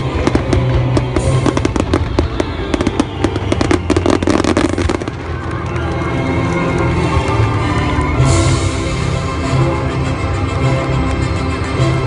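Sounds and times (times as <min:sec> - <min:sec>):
fireworks bursting: 0:00.0 - 0:06.6
loud music: 0:00.0 - 0:12.0.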